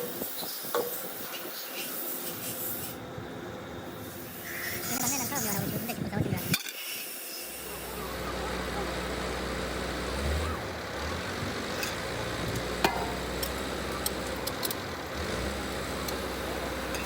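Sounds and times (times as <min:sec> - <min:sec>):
engine humming: 0:07.4 - 0:17.0.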